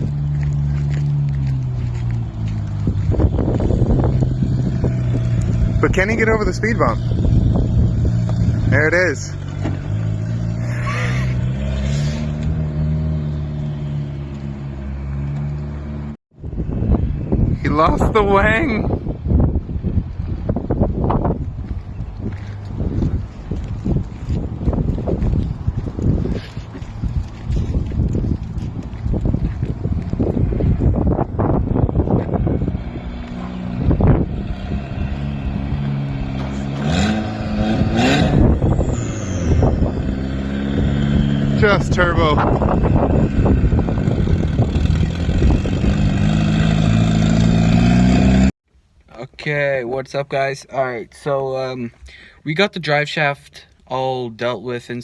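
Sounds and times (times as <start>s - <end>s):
car engine running: 0.0s - 11.4s
car engine revving: 0.0s - 16.2s, 31.0s - 48.5s.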